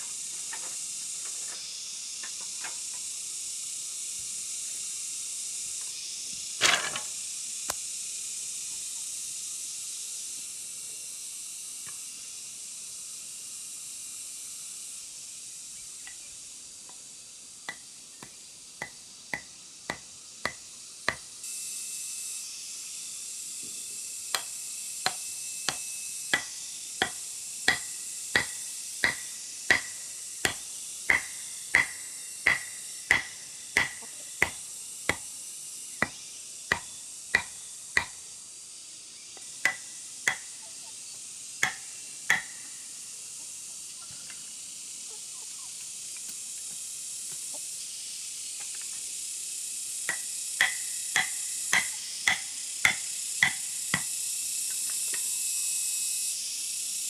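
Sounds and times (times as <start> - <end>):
constant high hiss: 0.0 - 57.0.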